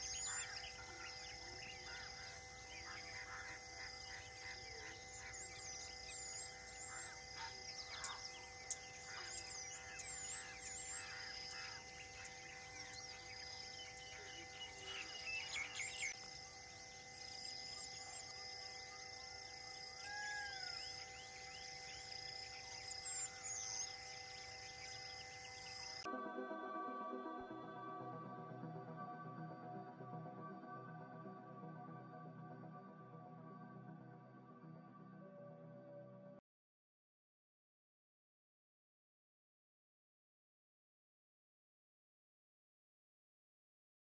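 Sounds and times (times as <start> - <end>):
birds chirping and calling: 0.0 - 26.1.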